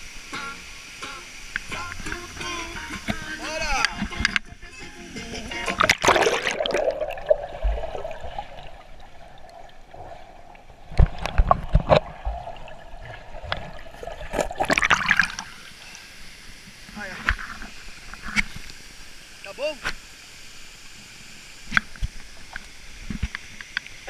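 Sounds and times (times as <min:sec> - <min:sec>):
water trickling and splashing: 0:05.4 - 0:24.0.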